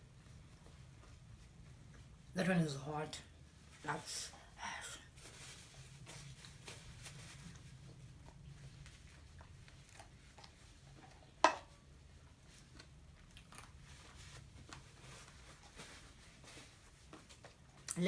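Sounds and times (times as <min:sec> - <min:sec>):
chewing food: 0:06.2 - 0:18.0.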